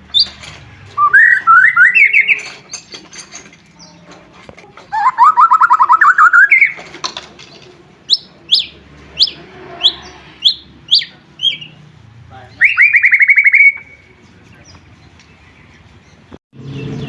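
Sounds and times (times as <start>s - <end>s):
bird singing trills and whistles: 1.0s - 3.2s, 4.9s - 6.9s, 8.0s - 11.8s, 12.5s - 17.0s.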